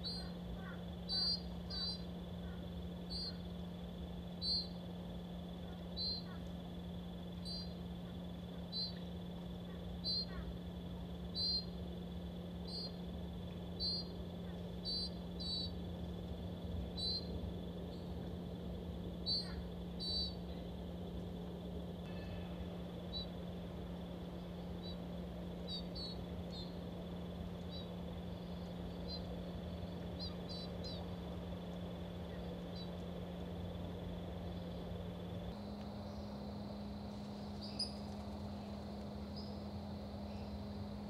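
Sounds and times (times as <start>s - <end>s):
songbird chip calls: 0.0s - 3.5s, 4.4s - 4.8s, 5.6s - 6.5s, 7.4s - 7.8s, 8.6s - 10.5s, 11.4s - 11.8s, 13.8s - 15.8s, 17.0s - 17.3s, 19.2s - 20.7s, 30.2s - 31.1s, 32.3s - 33.0s, 35.6s - 41.0s
steady low hum: 0.0s - 41.0s.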